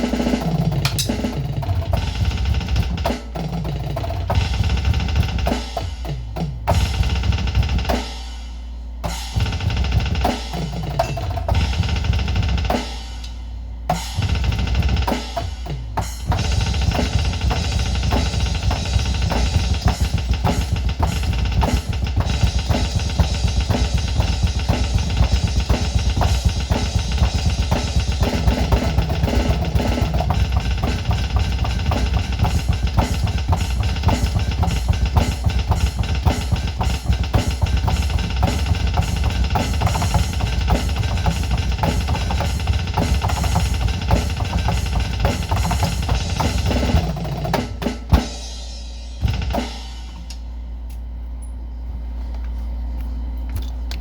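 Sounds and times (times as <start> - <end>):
electronic drum kit playing metal: 0.0 - 50.9.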